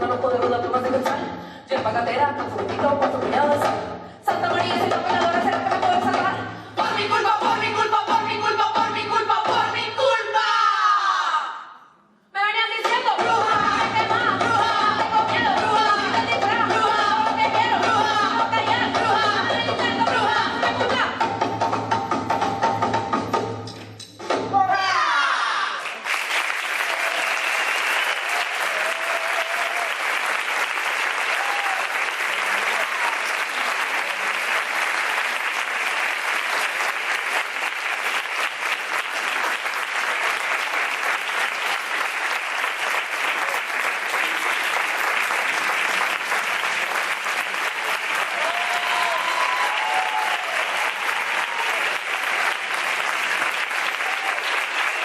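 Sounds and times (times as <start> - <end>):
audience applauding: 25.8 - 55.0.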